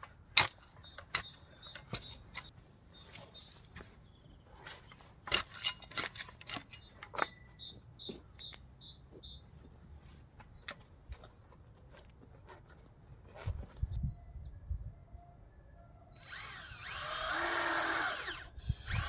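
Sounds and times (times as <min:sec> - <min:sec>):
small bird chirping: 0:00.6 - 0:05.1, 0:06.6 - 0:09.7.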